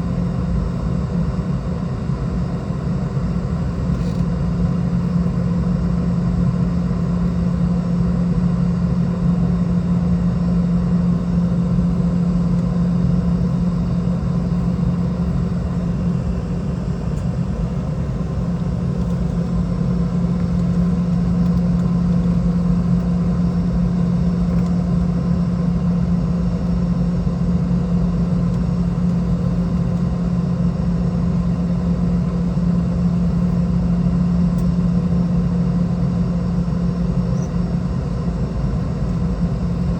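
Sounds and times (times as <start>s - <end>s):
airplane cabin engine hum: 0.0s - 39.9s.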